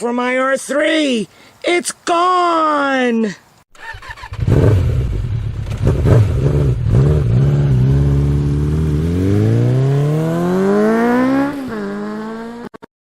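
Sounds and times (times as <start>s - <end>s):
motorcycle engine revving: 3.8s - 12.8s.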